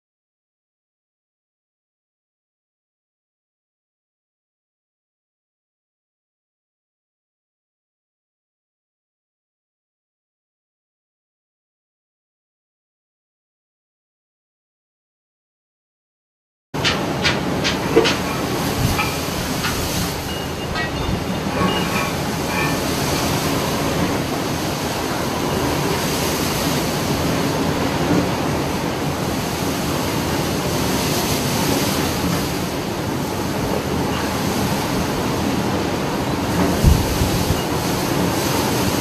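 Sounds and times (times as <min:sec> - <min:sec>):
sharp knocks: 0:16.8 - 0:22.8
ship rumbling and rattling: 0:16.8 - 0:39.0
water: 0:16.8 - 0:39.0
wind: 0:16.8 - 0:39.0
short high squeaks: 0:18.2 - 0:23.4.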